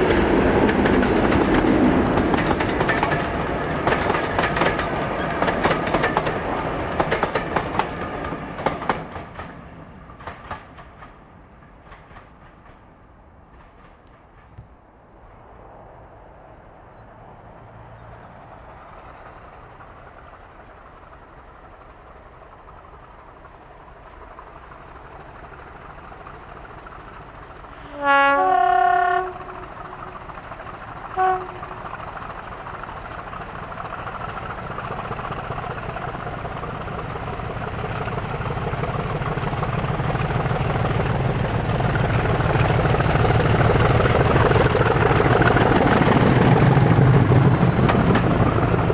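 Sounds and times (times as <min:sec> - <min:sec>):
diesel locomotive engine: 0:00.0 - 0:48.9
two-tone train horn: 0:27.7 - 0:30.1, 0:31.1 - 0:31.9.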